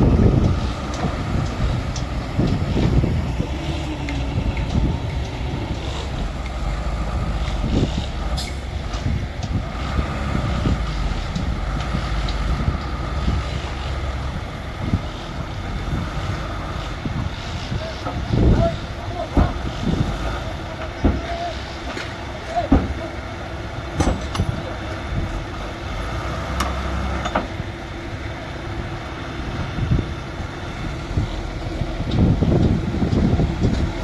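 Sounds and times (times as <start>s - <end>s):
bulldozer diesel engine running: 0.0s - 34.0s
machine clanks: 23.9s - 25.0s.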